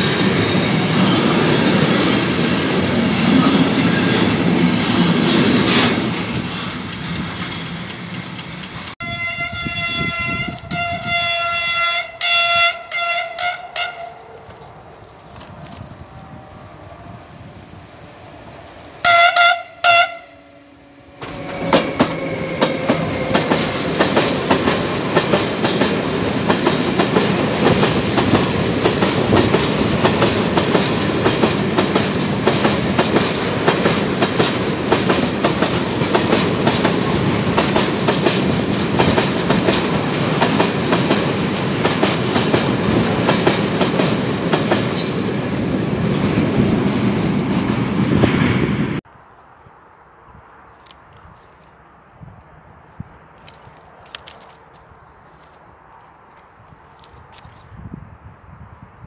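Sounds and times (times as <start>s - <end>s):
wheels running on rail: 0.0s - 11.2s, 17.4s - 49.0s
locomotive horn blasts: 9.0s - 14.3s, 19.0s - 22.1s.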